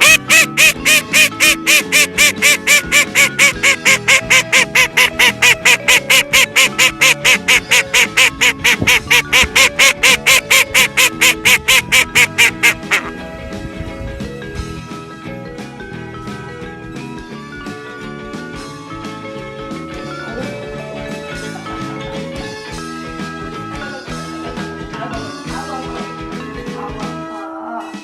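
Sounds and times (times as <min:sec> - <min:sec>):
rapid honk-like calls: 0:00.0 - 0:13.1
background music: 0:00.0 - 0:28.0.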